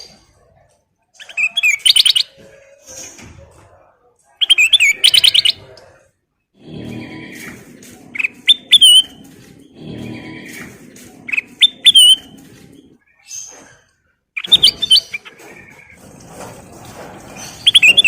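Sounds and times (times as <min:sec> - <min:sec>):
rough bird chatter with whistles: 0:04.4 - 0:05.7, 0:06.6 - 0:16.0.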